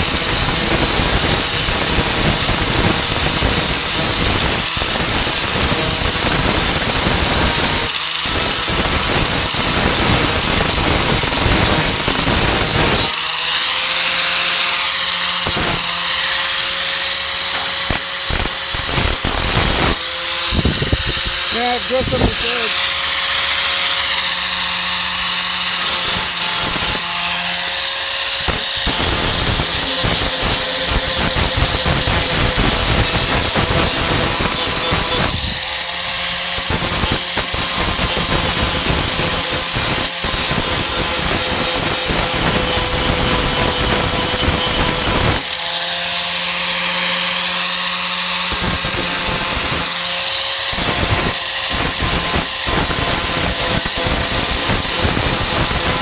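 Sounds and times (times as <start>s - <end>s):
angle grinder motor whining: 0.1s - 37.5s
grinding disc on metal: 15.4s - 24.2s, 25.8s - 39.8s.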